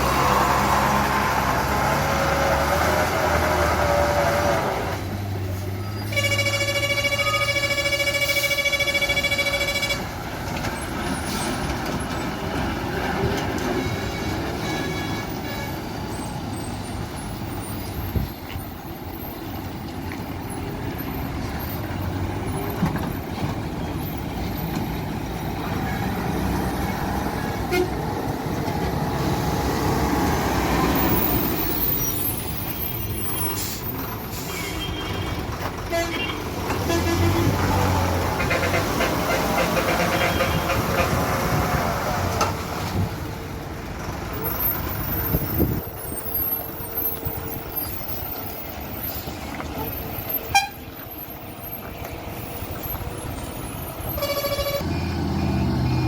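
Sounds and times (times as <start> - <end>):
truck engines rumbling: 0.0 - 56.0
truck horn: 6.0 - 10.2, 13.7 - 15.9, 27.6 - 28.1, 34.4 - 41.8, 50.3 - 50.9, 54.0 - 56.0.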